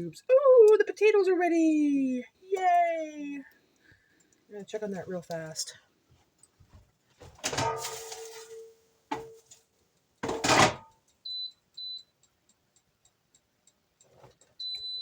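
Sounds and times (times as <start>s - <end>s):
air fryer basket clattering: 7.2s - 9.5s, 10.2s - 10.9s.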